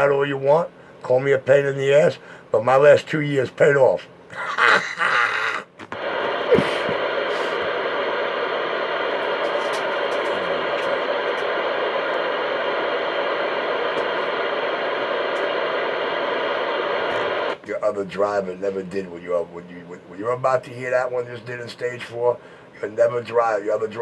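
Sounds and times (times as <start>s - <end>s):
radio static hiss: 0.0s - 3.7s, 4.4s - 24.0s
voice over radio: 6.0s - 24.0s.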